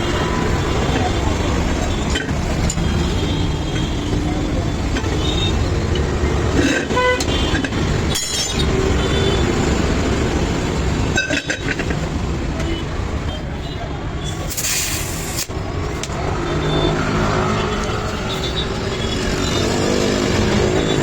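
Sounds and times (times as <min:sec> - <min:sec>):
road traffic rumble: 0:00.0 - 0:21.0
vehicle horn: 0:06.9 - 0:07.6.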